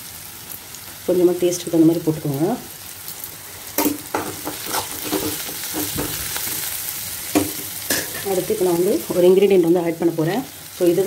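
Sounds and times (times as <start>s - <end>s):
stir-fry sizzling in hot oil: 0.0s - 11.0s
spatula stirring in a pan: 3.7s - 8.4s.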